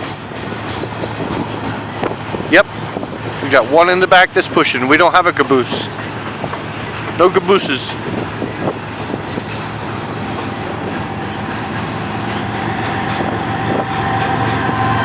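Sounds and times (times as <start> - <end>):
freight train rumbling past: 0.0 - 15.0
steady high tone: 7.9 - 15.0.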